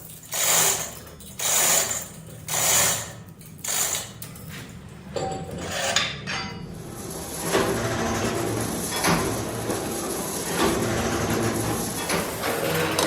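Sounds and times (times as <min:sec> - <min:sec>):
machine running: 0:06.8 - 0:13.0.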